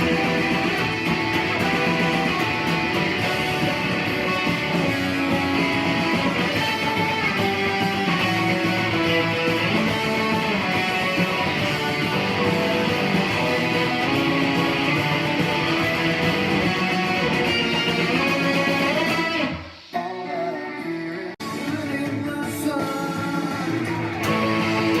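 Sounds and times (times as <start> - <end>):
electric guitar rock solo: 0.0 - 25.0.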